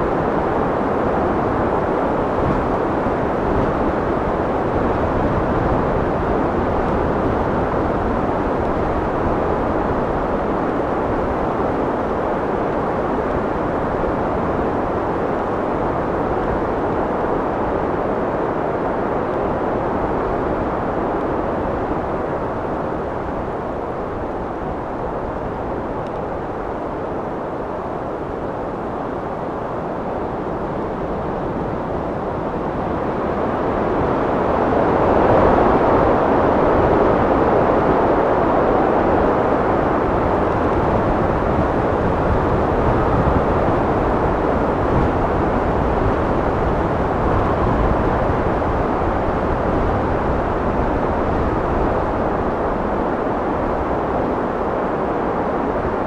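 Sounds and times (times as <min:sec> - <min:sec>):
wind blowing: 0:35.4 - 0:56.0.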